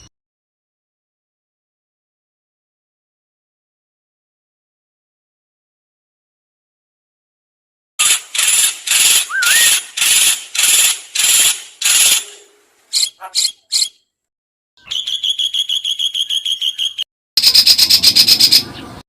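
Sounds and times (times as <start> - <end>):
fast buzzy bird trill: 8.0 - 14.0, 14.8 - 18.8
rising bird whistle: 9.2 - 10.0, 14.8 - 18.7
short bird chirps: 9.3 - 10.1, 14.8 - 19.0.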